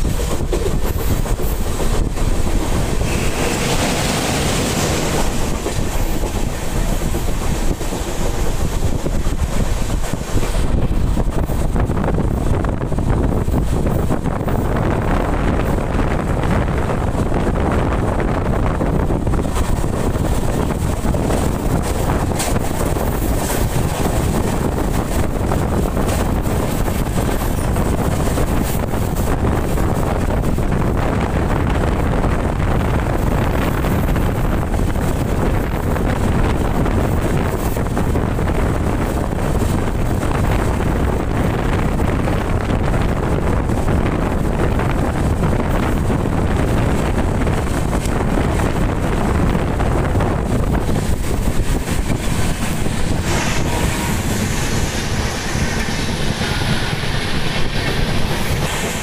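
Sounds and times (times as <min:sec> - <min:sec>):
passenger train rumbling at speed: 0:00.0 - 0:59.0
wind buffeting microphone: 0:00.0 - 0:59.0.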